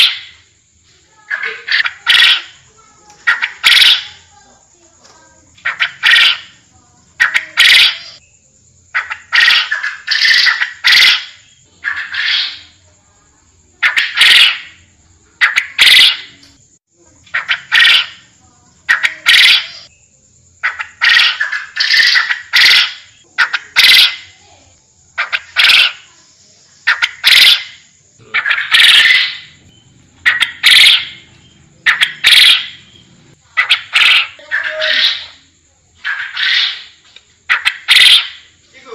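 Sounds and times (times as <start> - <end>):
quail calling: 0.0 - 0.4, 1.3 - 4.3, 5.6 - 6.6, 7.2 - 8.2, 8.9 - 12.8, 13.8 - 16.5, 17.2 - 19.9, 20.6 - 24.4, 25.2 - 26.1, 26.8 - 35.4, 36.0 - 38.6.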